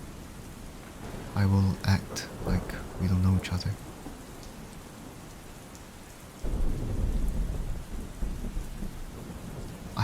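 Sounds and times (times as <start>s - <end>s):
thunder rumbling: 0.0s - 4.2s, 6.4s - 10.0s
heavy rain: 0.0s - 10.0s.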